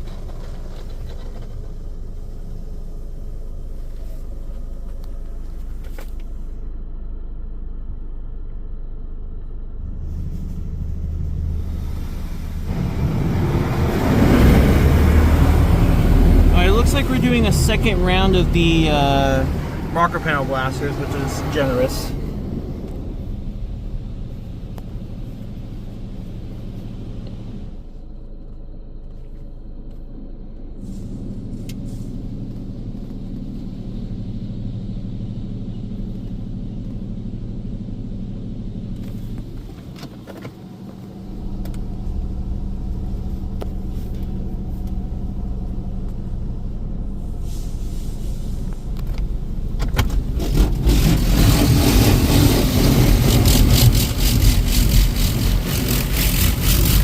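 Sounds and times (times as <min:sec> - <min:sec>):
car wash pumps and motors humming: 0:00.0 - 0:57.0
water spray rushing: 0:50.6 - 0:57.0.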